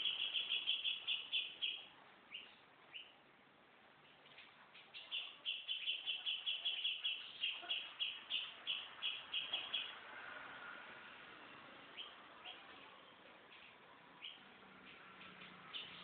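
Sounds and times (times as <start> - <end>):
bird singing rapid high notes: 0.0 - 3.1, 4.8 - 10.0.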